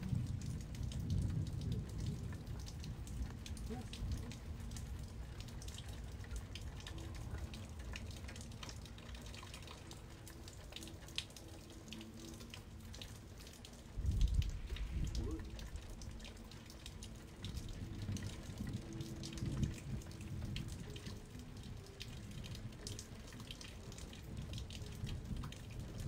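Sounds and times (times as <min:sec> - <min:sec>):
rain drops pattering and dripping: 0:00.0 - 0:26.0
low rumble: 0:14.0 - 0:16.3.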